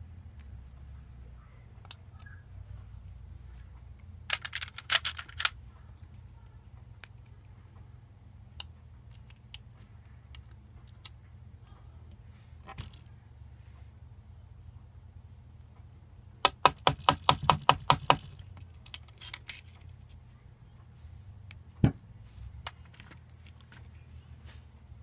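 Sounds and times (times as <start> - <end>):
steady low hum: 0.0 - 25.0
clicks and knocks of small parts: 4.3 - 6.4, 7.0 - 7.5, 8.6 - 11.2, 16.4 - 20.3, 22.6 - 24.0.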